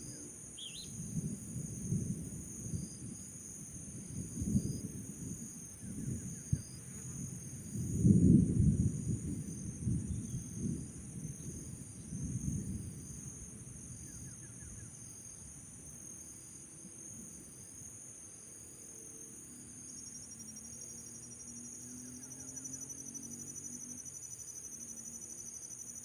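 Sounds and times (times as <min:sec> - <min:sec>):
fast pulsing insect trill: 0:00.0 - 0:08.2, 0:19.0 - 0:26.0
crickets and insects trilling: 0:00.0 - 0:26.0.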